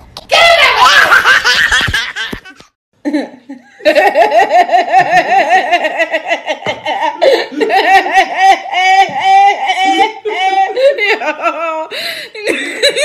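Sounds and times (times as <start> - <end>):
woman laughing: 3.0 - 13.0.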